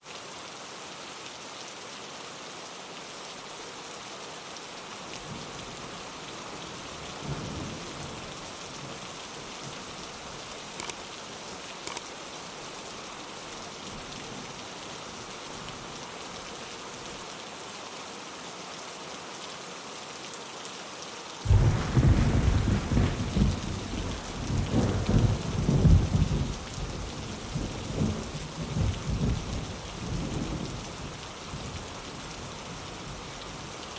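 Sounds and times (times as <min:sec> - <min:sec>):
rain falling on a window: 0:00.0 - 0:33.9
sharp drip ticks: 0:10.8 - 0:11.0, 0:11.8 - 0:12.1
low thunder rumble: 0:21.5 - 0:31.8.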